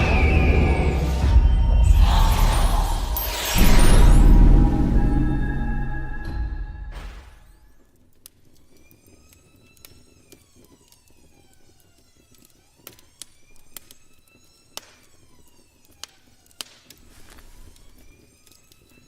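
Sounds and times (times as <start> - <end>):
siren-like wailing tones: 0.0 - 7.8, 8.7 - 19.0.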